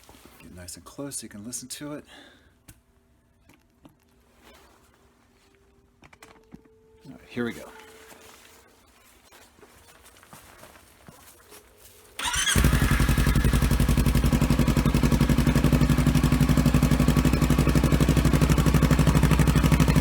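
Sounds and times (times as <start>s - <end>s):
motorcycle engine cranking and idling: 12.2s - 20.0s.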